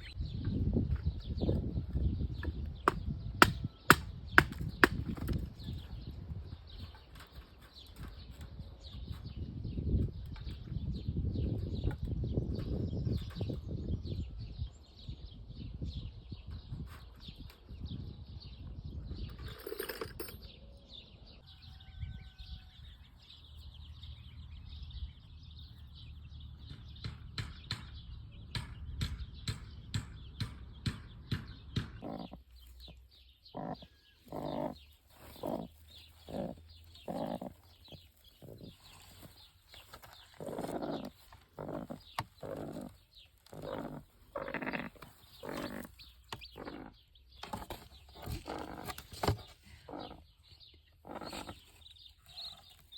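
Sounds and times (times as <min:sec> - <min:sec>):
farm animals calling: 0:31.8 - 0:47.3, 0:48.2 - 0:52.9.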